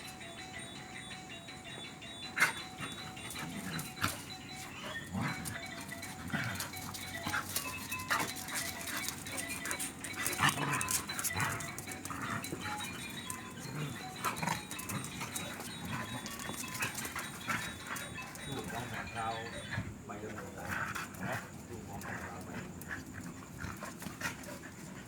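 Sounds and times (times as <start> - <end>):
background music: 0.0 - 24.6
dogs growling and yelping: 0.0 - 25.0.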